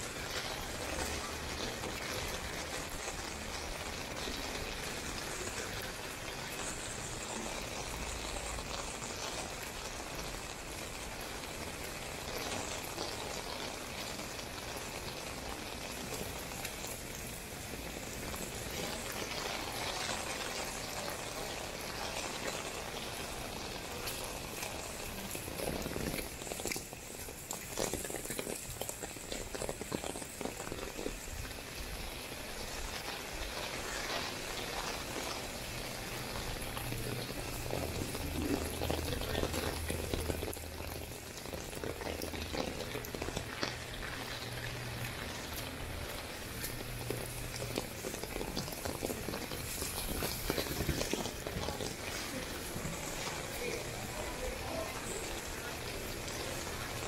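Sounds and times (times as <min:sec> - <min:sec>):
rain on hard surfaces: 0:00.0 - 0:57.0.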